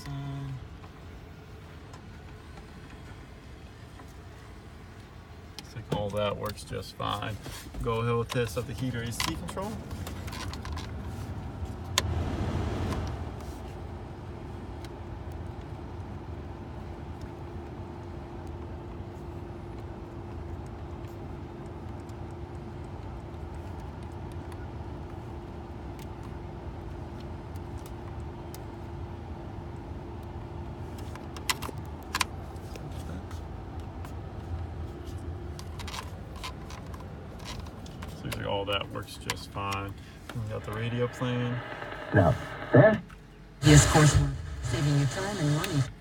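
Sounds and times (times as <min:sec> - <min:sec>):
car blower fan running: 0:00.0 - 0:46.0.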